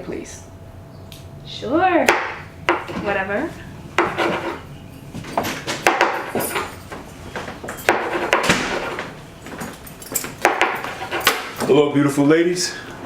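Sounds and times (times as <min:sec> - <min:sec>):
objects knocking on a counter: 0:05.2 - 0:06.7, 0:10.4 - 0:11.6.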